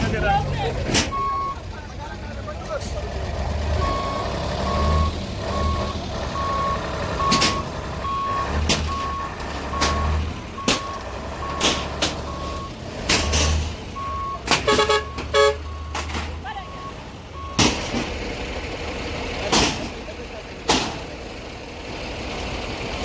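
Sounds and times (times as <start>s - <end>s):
diesel engine rumble: 0.0s - 23.0s
reversing alarm beeping: 1.1s - 1.6s, 3.8s - 12.8s, 14.0s - 17.6s
sharp knocks and bangs: 8.5s - 12.4s, 17.5s - 18.2s.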